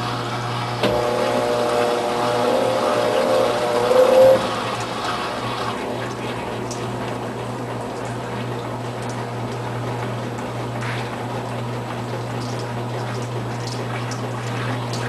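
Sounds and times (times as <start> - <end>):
washing machine motor whine: 0.0 - 15.0
water sloshing in drum: 0.8 - 15.0.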